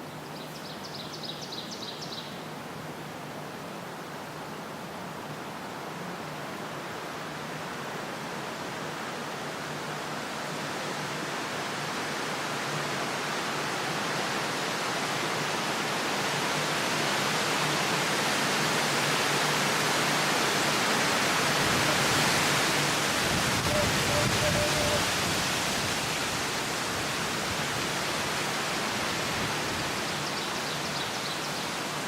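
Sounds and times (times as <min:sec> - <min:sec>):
steady rushing noise: 0:11.0 - 0:30.2.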